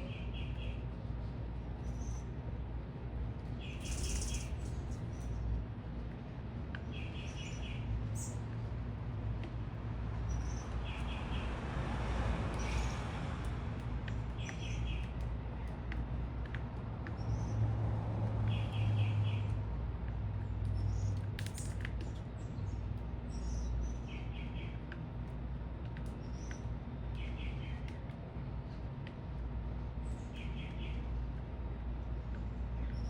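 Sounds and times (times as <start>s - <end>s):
small birds chirping: 0.0s - 2.7s, 3.4s - 8.6s, 10.2s - 11.5s, 14.1s - 15.9s, 17.0s - 17.6s, 20.4s - 25.0s, 25.9s - 28.8s, 29.9s - 31.4s, 32.2s - 33.0s
city traffic rumble: 0.0s - 33.0s.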